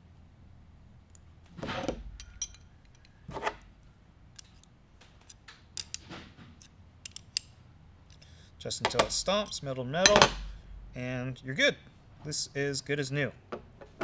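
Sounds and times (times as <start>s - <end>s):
small metal parts clicking: 2.0s - 10.5s.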